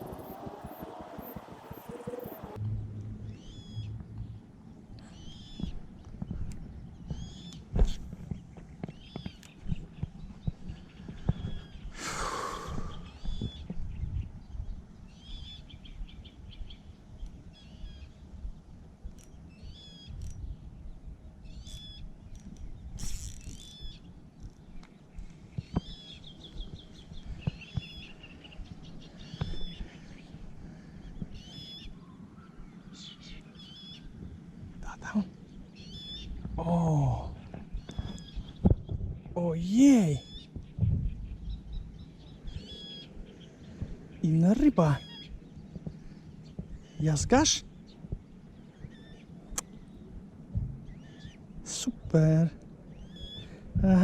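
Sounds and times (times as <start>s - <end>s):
songbirds chirping: 0.0s - 54.0s
low rumble: 40.6s - 43.2s, 49.7s - 52.1s.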